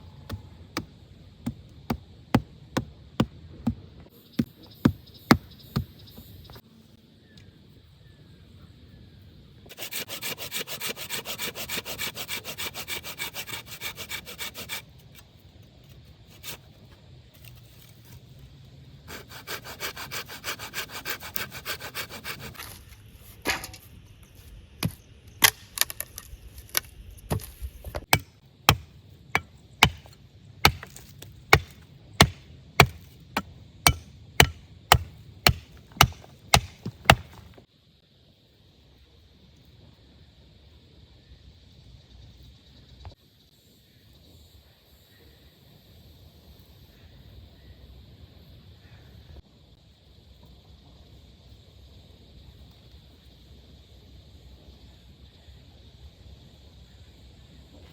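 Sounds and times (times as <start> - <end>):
sharp knocks on wood: 4.4 - 6.3, 33.9 - 37.6
hand saw cutting wood: 9.7 - 14.8, 19.1 - 22.6, 28.1 - 28.9, 29.8 - 33.0, 33.8 - 37.6.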